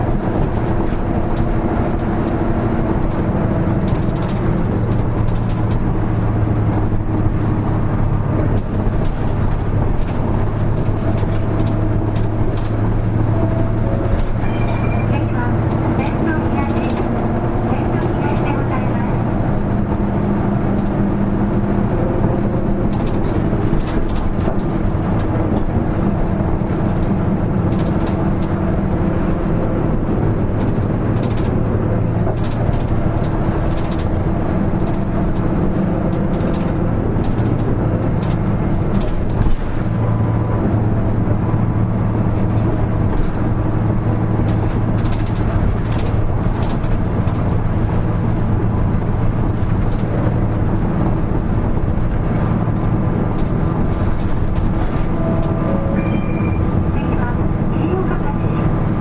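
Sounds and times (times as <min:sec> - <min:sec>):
bus diesel engine running: 0:00.0 - 0:59.0
interior rattles and clicks: 0:00.0 - 0:59.0.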